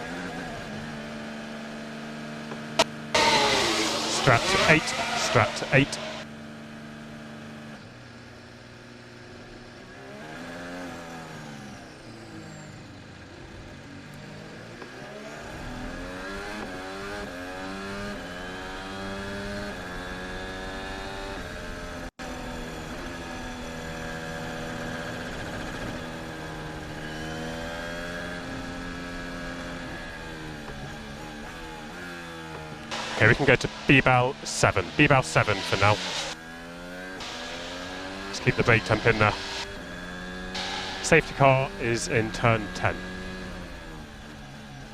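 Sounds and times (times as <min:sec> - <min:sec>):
racing car engine revving: 0:01.7 - 0:06.3, 0:27.2 - 0:44.5.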